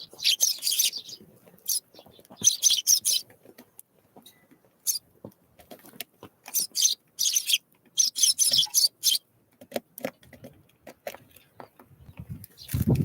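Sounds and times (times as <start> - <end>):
small birds scratchy hissing: 0.0 - 1.8, 2.4 - 3.2, 6.5 - 9.2.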